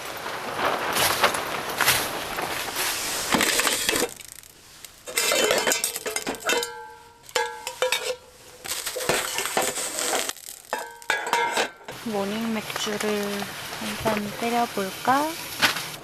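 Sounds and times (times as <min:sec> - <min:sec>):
dishes clinking and scraping: 0:05.0 - 0:12.0.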